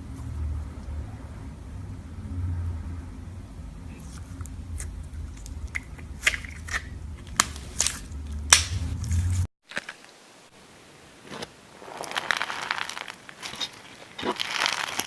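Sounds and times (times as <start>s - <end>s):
low handling rumble: 0.0s - 9.5s.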